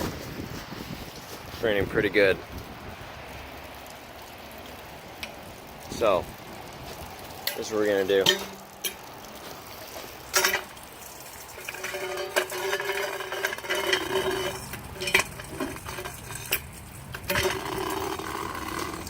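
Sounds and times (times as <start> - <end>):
metal pots clanking: 7.4 - 19.0
ringing scraping of utensils: 11.6 - 16.6.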